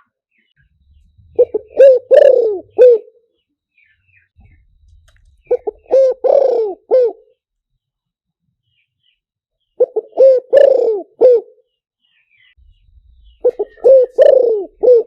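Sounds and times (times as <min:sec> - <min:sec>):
small birds chirping: 0:00.0 - 0:15.0
dove cooing: 0:01.2 - 0:03.3, 0:04.4 - 0:07.4, 0:09.8 - 0:11.7, 0:13.0 - 0:15.0.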